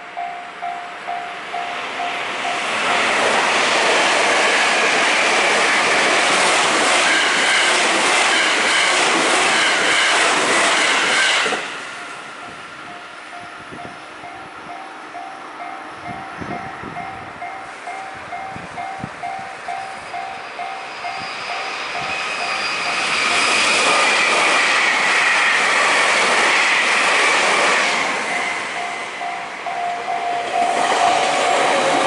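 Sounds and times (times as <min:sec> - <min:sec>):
level crossing warning bell: 0:00.0 - 0:03.3, 0:12.0 - 0:23.6, 0:28.2 - 0:32.0
train passing: 0:00.0 - 0:32.0.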